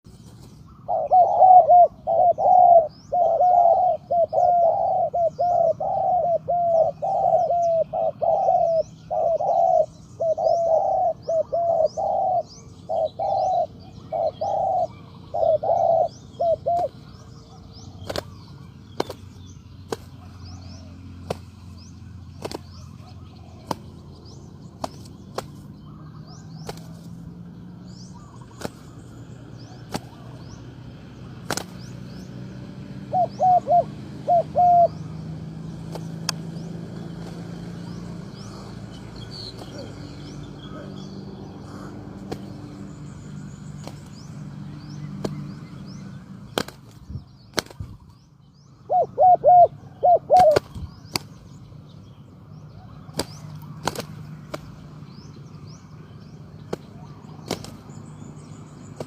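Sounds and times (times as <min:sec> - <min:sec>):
small birds chirping faintly: 0:00.0 - 0:59.0
dove cooing: 0:00.7 - 0:18.7, 0:27.7 - 0:30.8, 0:32.8 - 0:42.7, 0:48.8 - 0:50.8.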